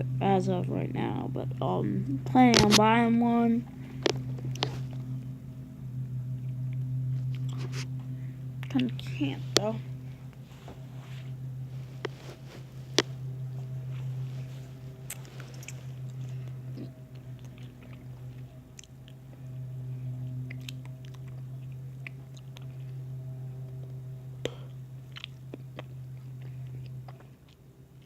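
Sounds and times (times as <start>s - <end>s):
steady low hum: 0.0s - 28.0s
small clicks and crackles: 2.5s - 2.8s, 3.8s - 5.3s, 8.6s - 23.0s.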